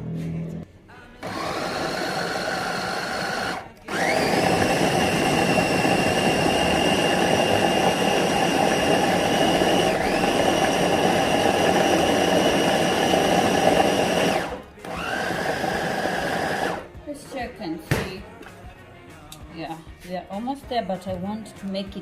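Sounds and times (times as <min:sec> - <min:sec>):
electric blender motor running: 0:01.2 - 0:16.9.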